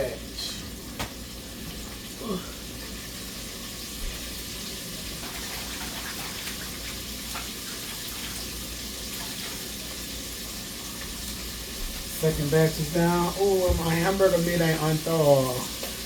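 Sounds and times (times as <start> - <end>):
food deep-frying in oil: 0.0 - 16.0.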